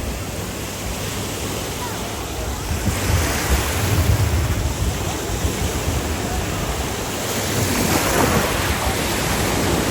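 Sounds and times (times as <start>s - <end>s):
surf washing onto beach: 0.0s - 9.9s
wind buffeting microphone: 2.4s - 9.9s.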